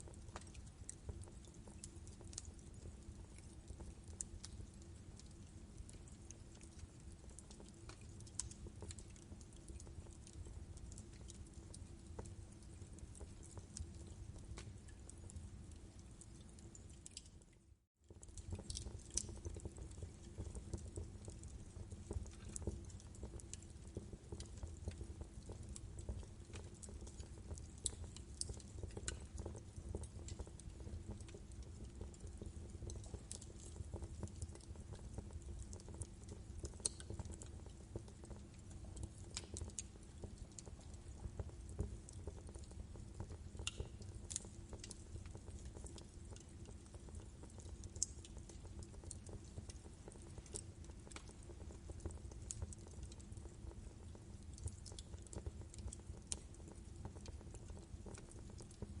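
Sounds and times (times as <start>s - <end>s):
wood fire crackling: 0.0s - 17.5s, 18.1s - 59.0s
fire popping and snapping: 0.1s - 17.4s, 18.1s - 59.0s.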